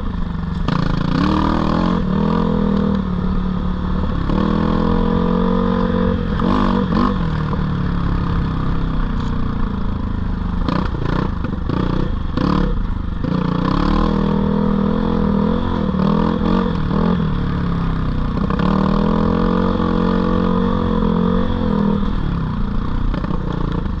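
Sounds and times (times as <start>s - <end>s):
dirt bike engine revving: 0.6s - 8.8s, 10.6s - 17.4s, 18.3s - 22.2s.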